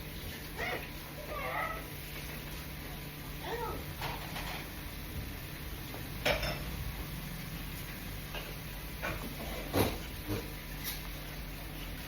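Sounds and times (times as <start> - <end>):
tableware knocking: 6.2 - 6.7.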